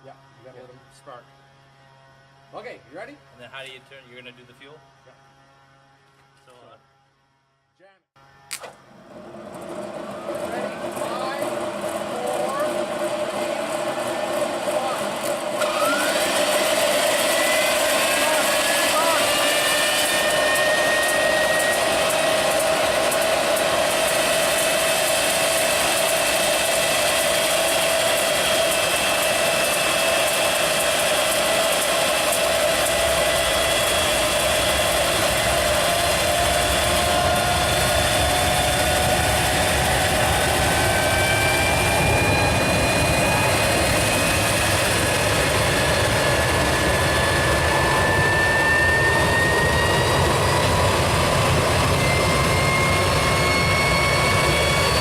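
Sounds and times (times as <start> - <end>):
jet engine whine: 8.2 - 55.0
deep engine rumble: 8.9 - 15.2.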